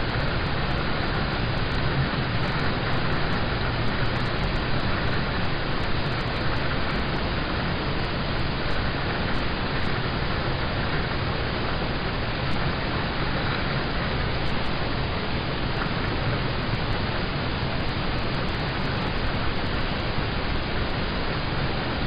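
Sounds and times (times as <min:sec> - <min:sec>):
rain on a car roof: 0:00.0 - 0:10.0, 0:15.6 - 0:20.9.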